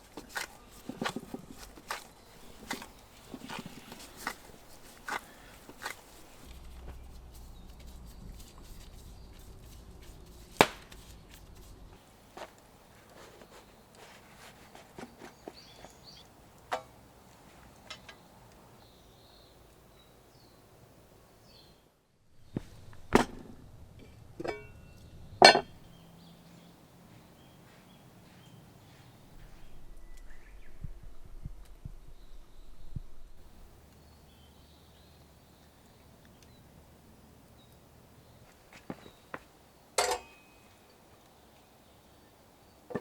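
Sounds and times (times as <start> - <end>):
objects being handled: 0.0 - 18.2
metallic knock: 25.4 - 25.7.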